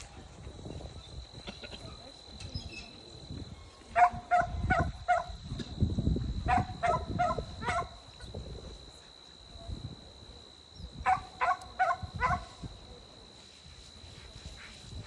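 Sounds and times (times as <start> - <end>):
dog barking: 4.0 - 5.4, 6.5 - 8.0, 11.0 - 12.6.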